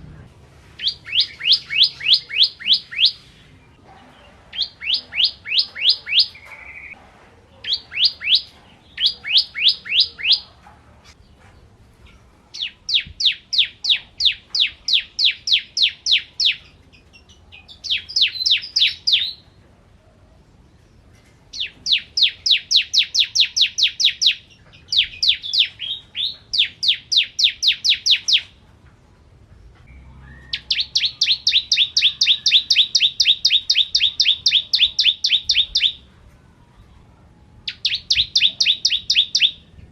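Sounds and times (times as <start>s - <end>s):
bird singing fast trills: 0.8s - 3.4s, 4.6s - 7.0s, 7.7s - 10.5s, 12.6s - 16.7s, 17.3s - 19.4s, 21.5s - 28.5s, 29.9s - 36.1s, 37.6s - 39.7s.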